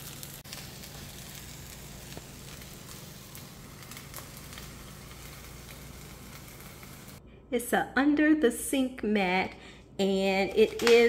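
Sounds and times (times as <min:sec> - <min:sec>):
omelet sizzling in a skillet: 0:00.0 - 0:07.2.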